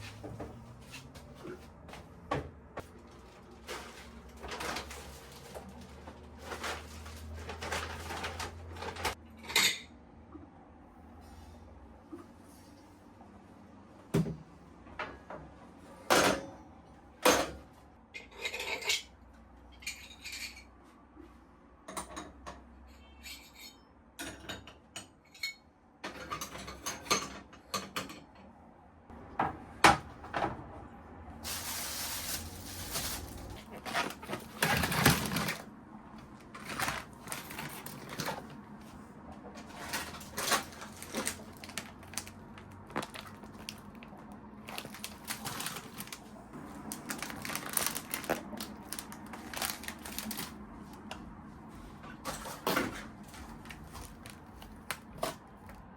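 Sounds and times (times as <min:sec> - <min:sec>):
small hard objects clinking: 0:46.9 - 0:50.5.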